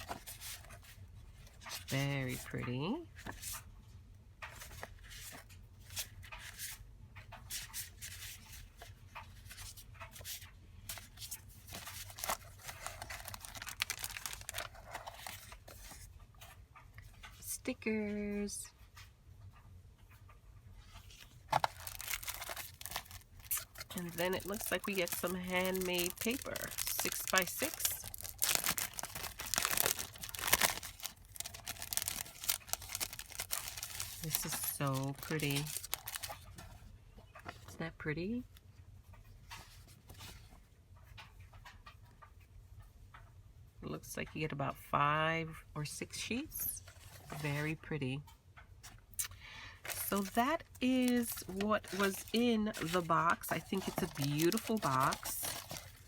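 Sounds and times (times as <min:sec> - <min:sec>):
paper and cellophane rustling: 0:00.0 - 0:03.6, 0:07.6 - 0:16.6, 0:20.9 - 0:36.8, 0:49.8 - 0:56.0.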